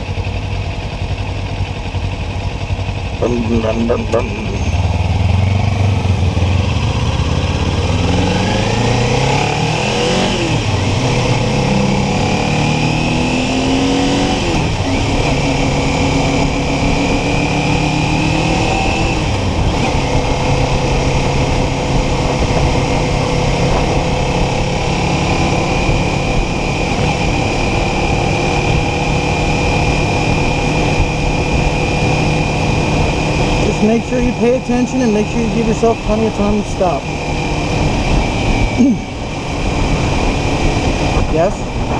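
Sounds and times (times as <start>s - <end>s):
motorcycle engine accelerating: 0.0s - 41.9s
wind on microphone: 19.1s - 33.7s, 37.1s - 41.9s.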